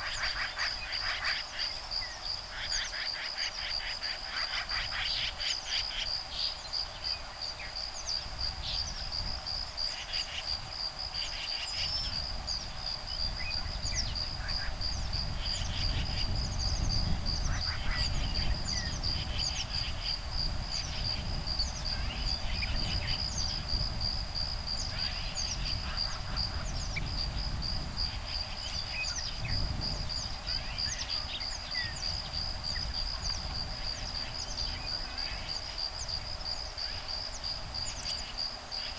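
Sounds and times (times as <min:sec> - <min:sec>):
high pulsing insect trill: 0:00.0 - 0:38.9
wind rumble on microphone: 0:03.6 - 0:38.9
bird calls and chirps: 0:11.2 - 0:20.1.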